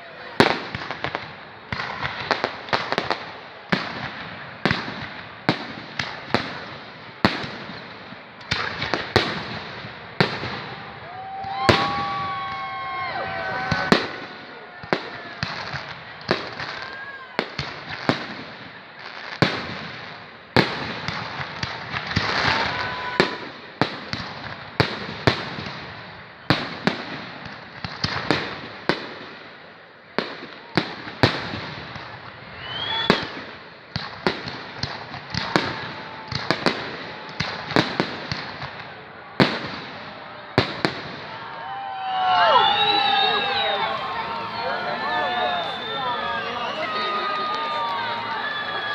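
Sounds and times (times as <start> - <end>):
firework crackling: 8.5 - 15.6, 42.4 - 48.9
firework bangs: 8.5 - 16.7, 42.4 - 48.9.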